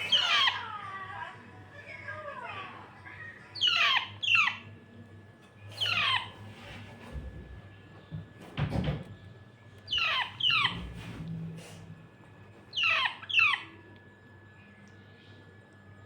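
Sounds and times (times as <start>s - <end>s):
parakeet chick squeaking: 0.0s - 0.7s, 3.6s - 4.7s, 5.7s - 6.4s, 9.9s - 11.0s, 12.7s - 13.8s.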